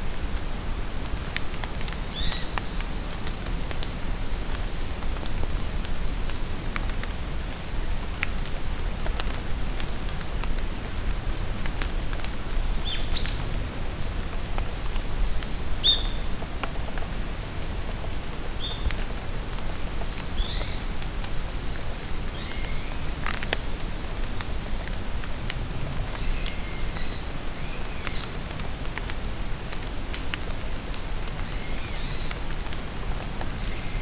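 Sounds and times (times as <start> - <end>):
rain pattering in forest: 0.0 - 34.0
small birds chirping: 1.9 - 3.1.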